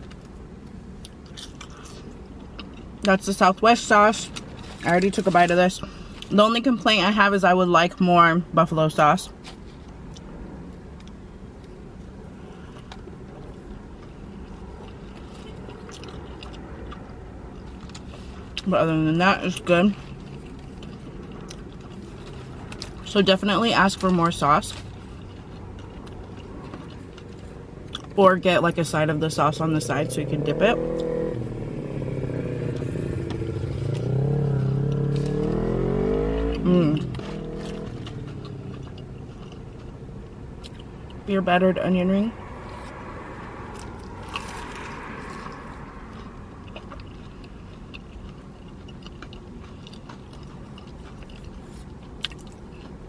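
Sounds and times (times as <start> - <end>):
car interior rumble: 0.0 - 53.0
person chewing: 1.0 - 3.1, 11.0 - 18.7, 20.0 - 23.0, 24.7 - 28.2, 32.0 - 41.2, 42.6 - 53.0
vehicle engine accelerating past: 29.8 - 39.3, 42.3 - 46.9.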